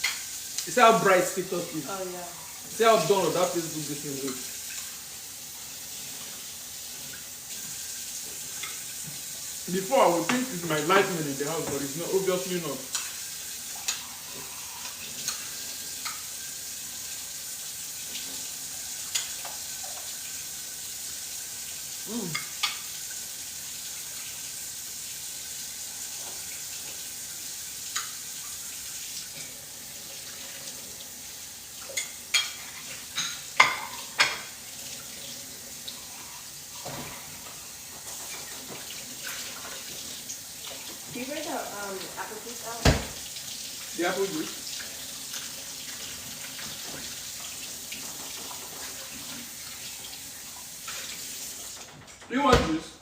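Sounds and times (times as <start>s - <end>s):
steady kitchen hiss: 0.0s - 53.0s
pots and dishes clinking: 8.4s - 9.3s, 12.8s - 16.4s, 19.0s - 20.2s, 22.2s - 23.1s, 31.8s - 34.6s, 36.8s - 39.9s.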